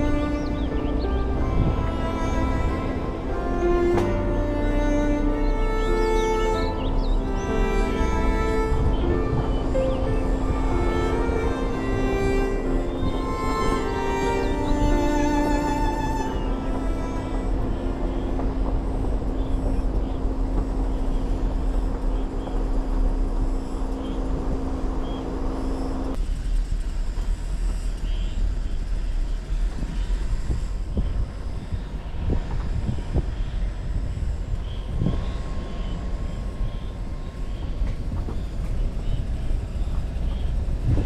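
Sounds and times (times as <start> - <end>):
low thumps: 0.0 - 22.8
steady drone: 0.0 - 26.6
engine and road rumble: 0.0 - 41.0.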